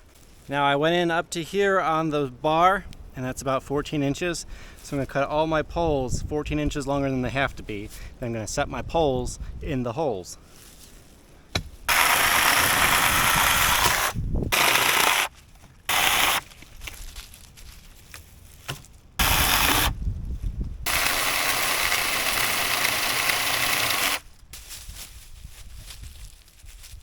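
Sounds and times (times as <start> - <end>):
electric chainsaw cutting: 11.9 - 15.3, 15.9 - 16.4, 19.2 - 20.0, 20.9 - 24.2.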